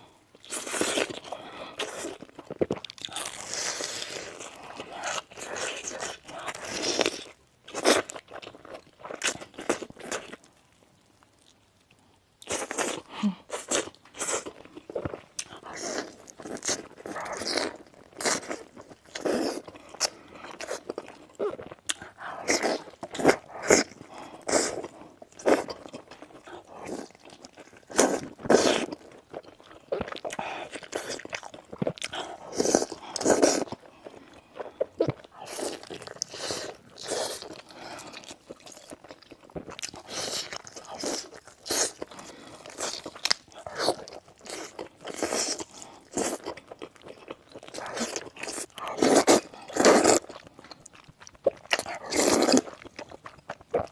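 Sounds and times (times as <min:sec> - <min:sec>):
chewing: 0:11.4 - 0:53.9.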